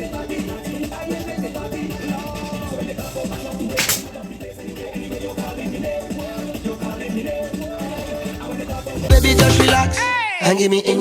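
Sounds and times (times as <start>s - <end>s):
soca music with dance beat: 0.0s - 11.0s
person singing: 5.2s - 11.0s.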